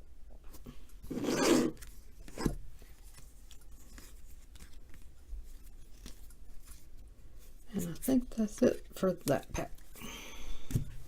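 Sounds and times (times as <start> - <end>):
cards rubbing together: 1.1 - 9.1.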